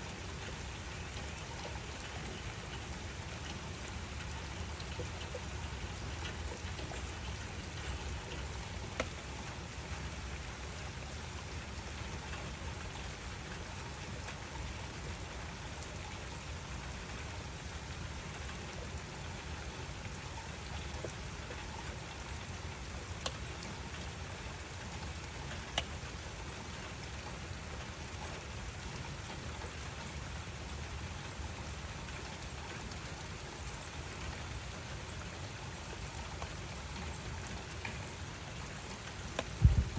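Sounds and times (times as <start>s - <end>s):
steady rain hiss: 0.0s - 39.9s
single raindrop ticks: 6.1s - 9.3s, 25.5s - 26.0s, 38.9s - 39.9s.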